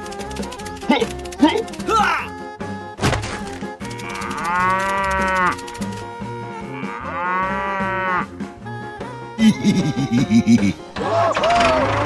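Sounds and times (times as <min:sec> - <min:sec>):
cow mooing: 0:04.0 - 0:05.7, 0:06.5 - 0:08.4.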